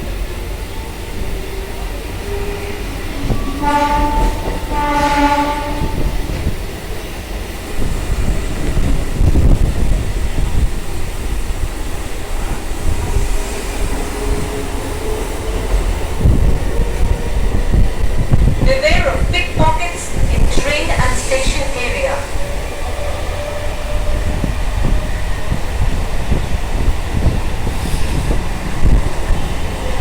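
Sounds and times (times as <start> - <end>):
train rumbling on tracks: 0.0 - 30.0
train horn blasts: 3.2 - 6.3.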